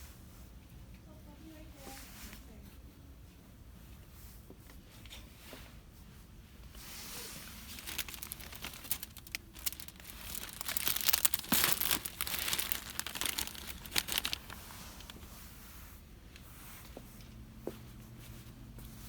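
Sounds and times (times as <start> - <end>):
packaging crinkling: 7.3 - 15.2.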